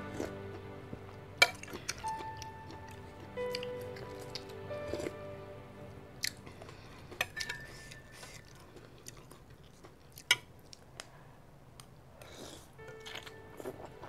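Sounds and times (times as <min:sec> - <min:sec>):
faint background music: 0:00.0 - 0:09.4, 0:12.2 - 0:14.0
person chewing noodle soup: 0:01.4 - 0:05.2, 0:06.2 - 0:14.0.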